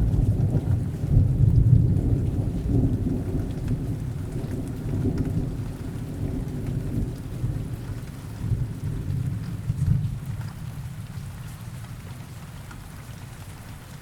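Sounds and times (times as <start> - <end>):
low rumble of thunder: 0.0 - 11.3
rain falling: 0.0 - 14.0.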